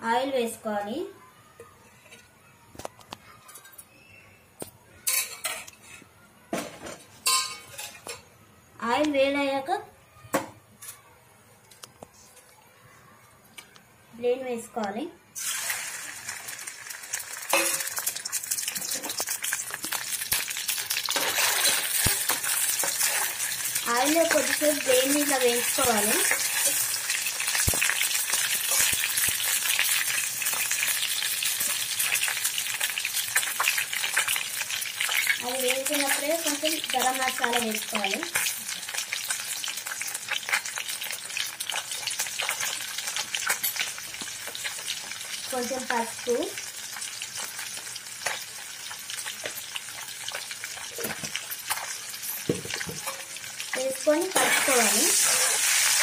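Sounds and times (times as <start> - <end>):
food sizzling in hot oil: 15.4 - 56.0.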